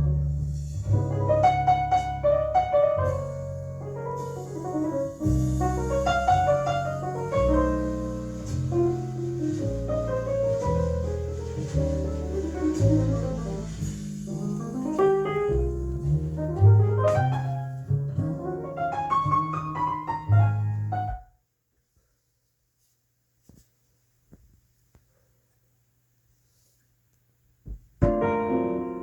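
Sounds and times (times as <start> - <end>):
piano music over loudspeakers: 0.0 - 21.2, 28.0 - 29.0.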